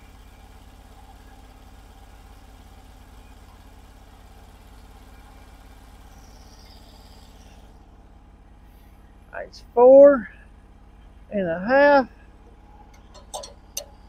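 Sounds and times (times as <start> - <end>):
sawmill engine idling: 0.0 - 9.1, 12.3 - 14.0.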